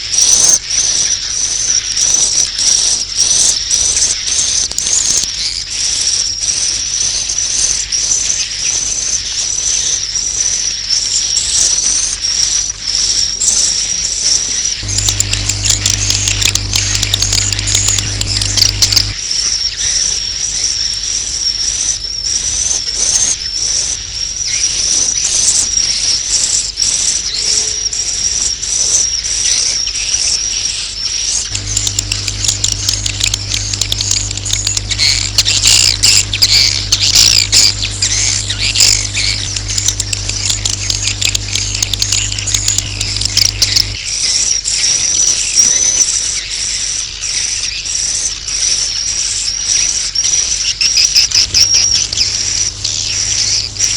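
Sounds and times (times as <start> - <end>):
low steady hum: 14.8 - 19.2, 31.5 - 44.0, 51.2 - 53.9
swiftlets twittering: 14.8 - 19.2, 31.4 - 44.1, 50.8 - 53.9.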